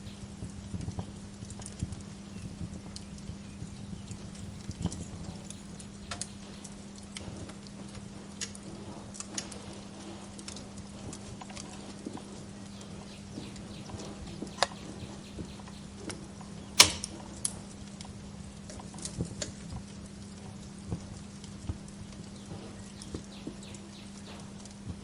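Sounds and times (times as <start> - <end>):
low hum: 0.0 - 7.4
wood fire crackling: 0.0 - 25.0
loud fire pop: 16.8 - 17.2.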